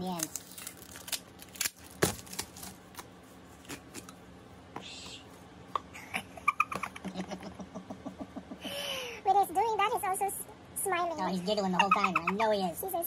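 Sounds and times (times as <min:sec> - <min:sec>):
packaging rustle: 0:00.0 - 0:04.1
scissors cutting packaging: 0:00.0 - 0:04.1.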